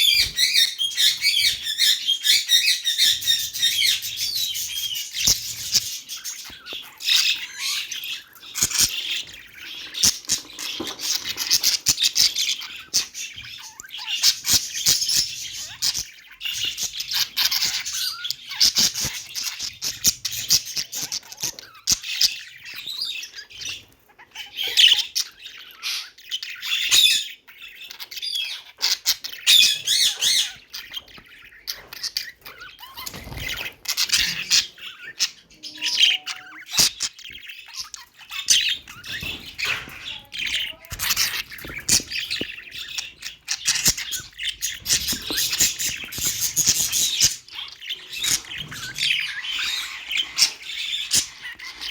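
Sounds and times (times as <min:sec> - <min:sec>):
budgerigars chirping and warbling: 0:00.0 - 0:51.9.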